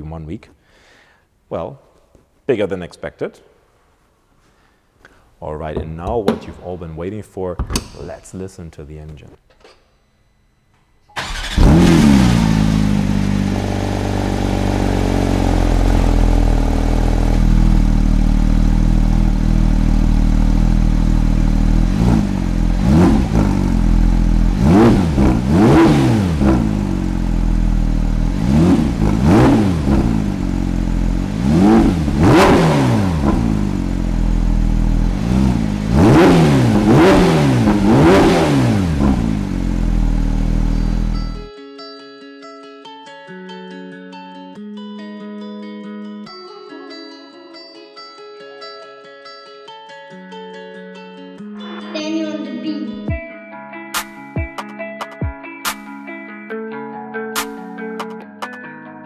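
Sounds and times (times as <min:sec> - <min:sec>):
car engine starting and revving: 0:11.2 - 0:41.5.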